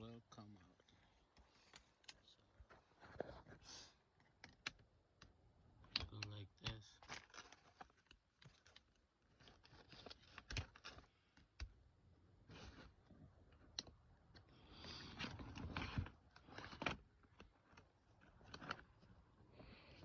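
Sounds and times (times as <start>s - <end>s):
plastic and metal parts clicking: 4.2s - 11.8s, 13.5s - 14.5s, 15.1s - 19.0s.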